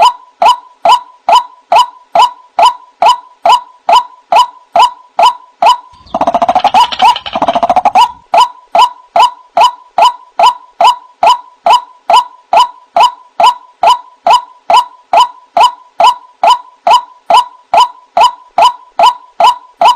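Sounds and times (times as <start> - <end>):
waterhen calling: 5.9 - 8.2
harsh bird chattering: 5.9 - 8.5.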